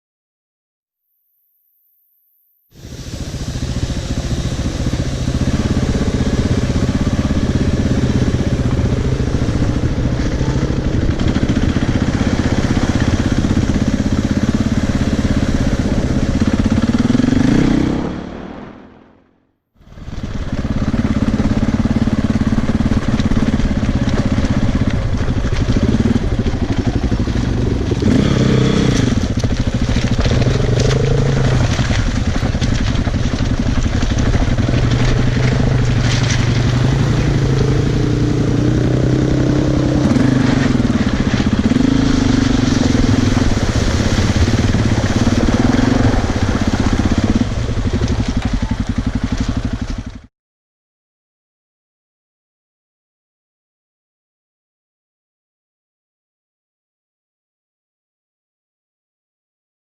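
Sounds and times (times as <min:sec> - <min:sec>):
motorcycle engine revving: 0:02.7 - 0:50.3.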